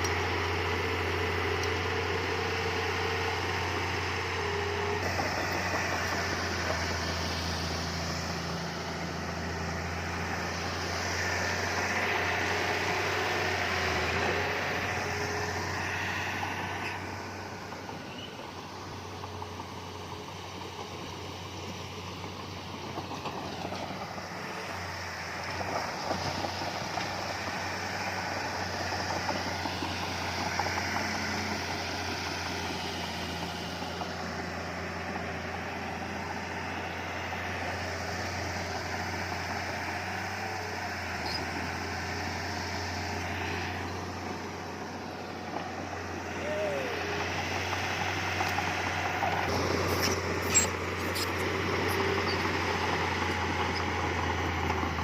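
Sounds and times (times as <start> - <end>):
heavy machinery diesel engine: 0.0 - 55.0.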